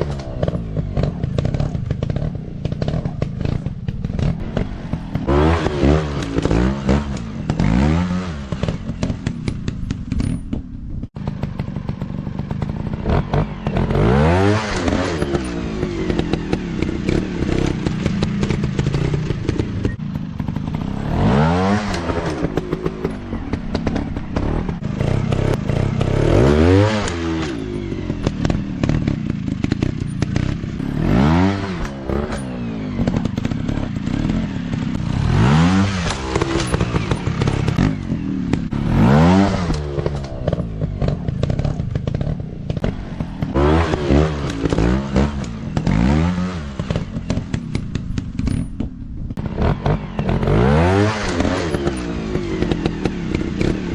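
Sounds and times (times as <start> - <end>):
dirt bike engines revving: 0.0 - 53.9
clattering and scraping: 31.6 - 50.6.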